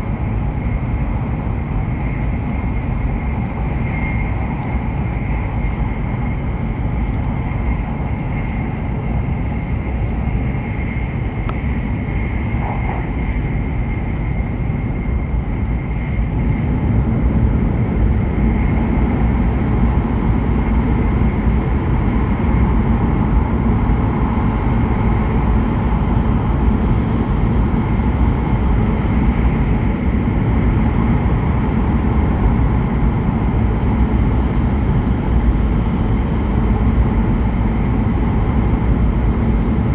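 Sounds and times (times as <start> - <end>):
train cabin rumble: 0.0 - 19.8.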